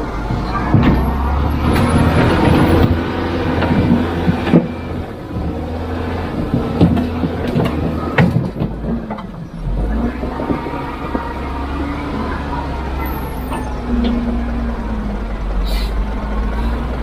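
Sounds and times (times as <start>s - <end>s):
diesel engine running: 0.0s - 17.0s
metallic clanks and knocks: 0.2s - 4.9s, 6.3s - 9.4s.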